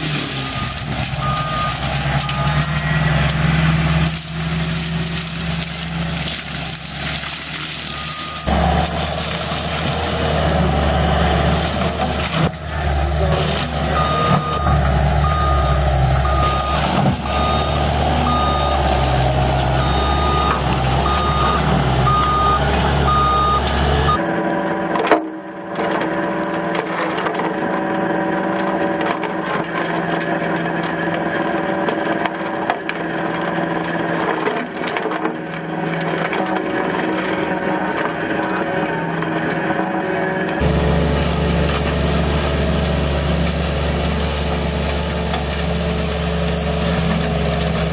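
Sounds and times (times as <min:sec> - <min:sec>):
reversing alarm beeping: 0:00.0 - 0:04.2, 0:07.8 - 0:10.7, 0:11.4 - 0:24.2
diesel engine running: 0:00.0 - 0:24.8, 0:36.1 - 0:47.9.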